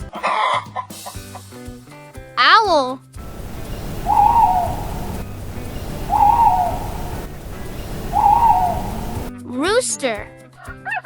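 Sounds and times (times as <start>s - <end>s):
low background noise: 3.2s - 9.3s
owl hooting: 3.2s - 9.3s.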